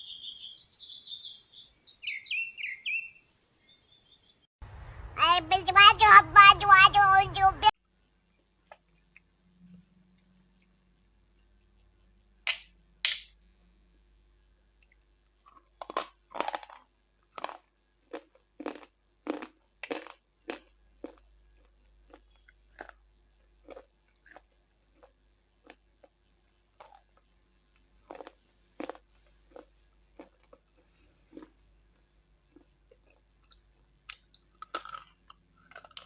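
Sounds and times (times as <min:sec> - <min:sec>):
crisp crunching chews: 0:15.5 - 0:27.2, 0:27.8 - 0:31.6, 0:32.5 - 0:36.0.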